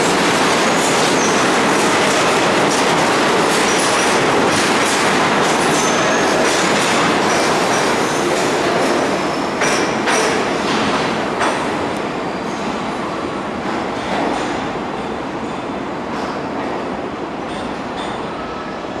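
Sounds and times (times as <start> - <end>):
train wheels clattering over rail joints: 9.6 - 11.8.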